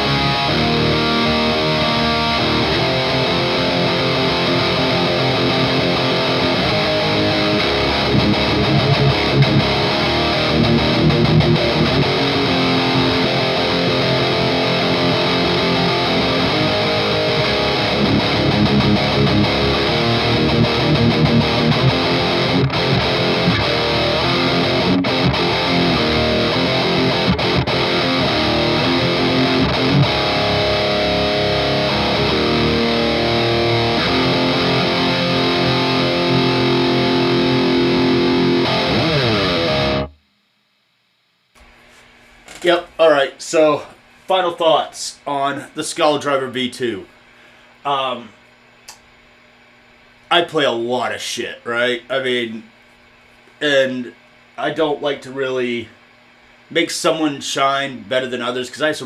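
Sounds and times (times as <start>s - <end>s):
distorted electric guitar: 0.0s - 40.2s.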